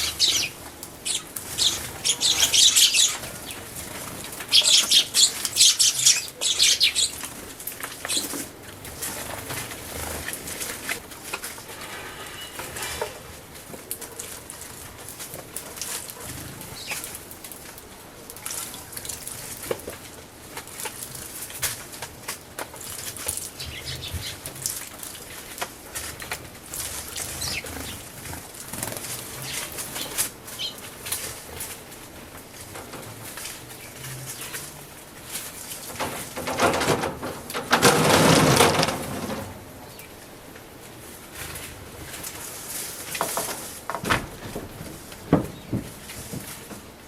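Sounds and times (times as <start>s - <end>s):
sparrow chirps: 0.0s - 3.2s, 4.5s - 7.2s.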